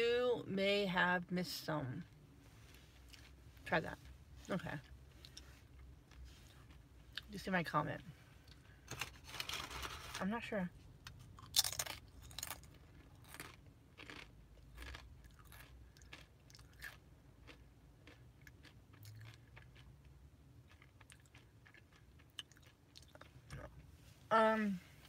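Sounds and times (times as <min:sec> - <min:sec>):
person chewing food: 0:11.0 - 0:23.9.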